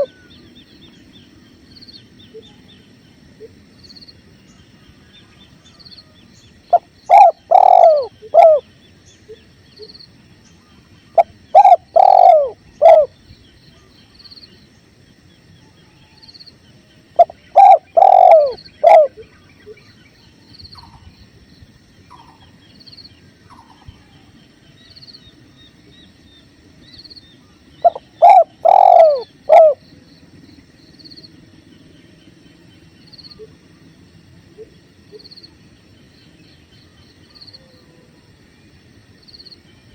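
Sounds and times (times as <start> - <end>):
dove cooing: 0.0 - 0.3, 6.7 - 8.7, 11.2 - 13.2, 17.2 - 19.3, 27.8 - 29.8.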